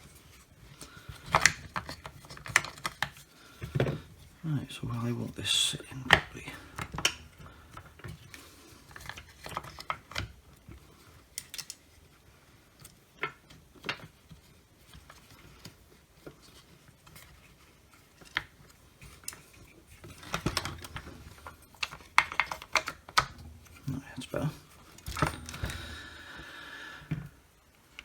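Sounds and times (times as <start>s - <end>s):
saw parts clicking and tapping: 24.9s - 26.0s.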